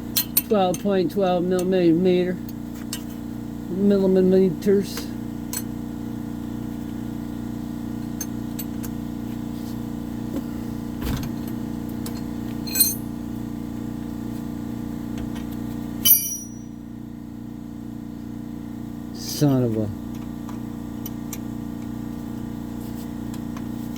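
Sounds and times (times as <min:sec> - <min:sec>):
sharp metallic rings: 0:12.7 - 0:13.1, 0:16.0 - 0:16.8
wrench and socket clinking: 0:12.7 - 0:13.1, 0:16.0 - 0:16.7.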